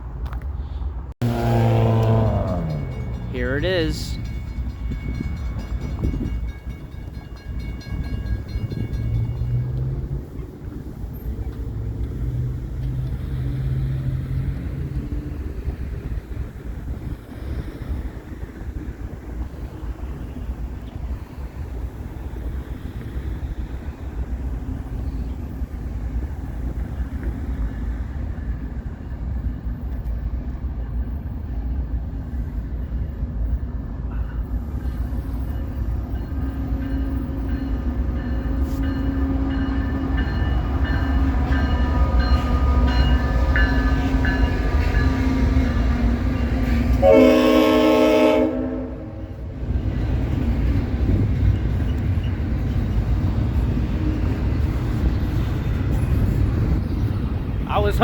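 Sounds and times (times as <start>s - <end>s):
freight train rumbling: 0.0s - 58.0s
locomotive horn blast: 1.2s - 4.3s, 46.7s - 49.4s.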